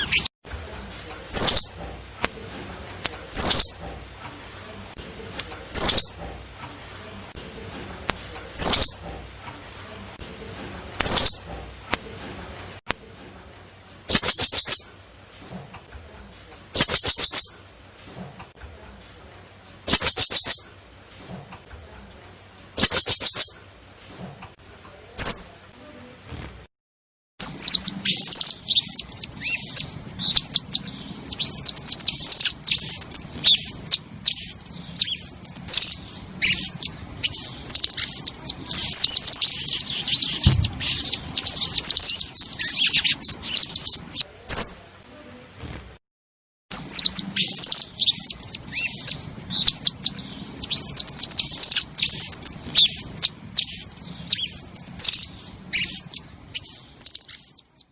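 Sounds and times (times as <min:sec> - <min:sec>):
parrot calling: 0:00.0 - 0:00.3, 0:01.3 - 0:01.8, 0:03.3 - 0:03.8, 0:05.7 - 0:06.2, 0:08.6 - 0:09.1, 0:11.0 - 0:11.5, 0:14.0 - 0:14.9, 0:16.7 - 0:17.6, 0:19.8 - 0:20.7, 0:22.7 - 0:23.6, 0:25.2 - 0:25.5, 0:27.4 - 0:44.8, 0:46.7 - 0:57.9
parrot twittering chatter: 0:00.0 - 0:00.3, 0:01.3 - 0:01.8, 0:03.3 - 0:03.8, 0:05.7 - 0:06.2, 0:08.6 - 0:09.1, 0:11.0 - 0:11.5, 0:14.0 - 0:14.9, 0:16.7 - 0:17.6, 0:19.8 - 0:20.7, 0:22.7 - 0:23.6, 0:27.4 - 0:44.8, 0:46.7 - 0:57.9.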